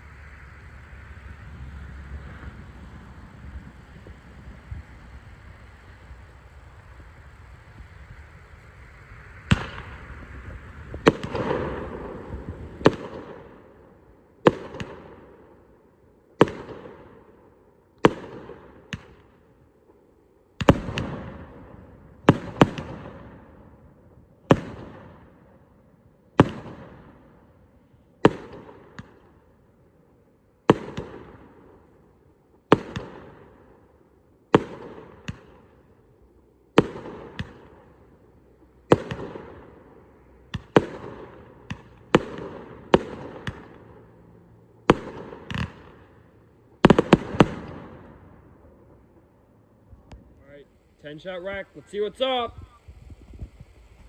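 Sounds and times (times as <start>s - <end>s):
fireworks bangs with crackle: 1.9s - 15.6s, 16.4s - 17.4s, 18.0s - 19.5s, 20.6s - 25.6s, 26.4s - 27.5s, 28.2s - 29.6s, 30.6s - 33.9s, 34.5s - 36.0s, 36.7s - 49.2s
small firework pops: 18.0s - 19.4s, 20.6s - 21.5s, 22.2s - 23.4s, 28.2s - 29.4s, 30.7s - 31.5s, 32.7s - 33.5s, 34.5s - 35.9s, 36.8s - 38.0s, 38.8s - 39.8s, 40.5s - 43.9s, 44.8s - 46.2s, 46.8s - 48.1s.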